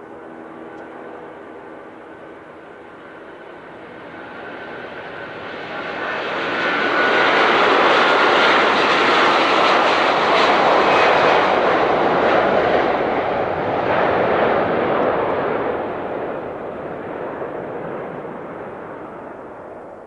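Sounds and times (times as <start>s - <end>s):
faint engine whine: 0.0s - 8.8s
jet engines roaring at takeoff: 0.0s - 20.0s.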